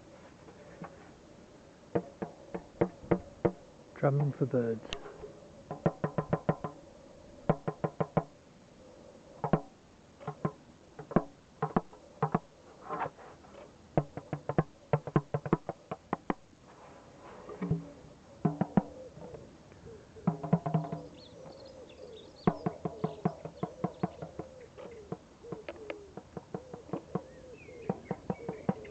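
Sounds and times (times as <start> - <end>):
drum strikes: 20.3 - 21.1.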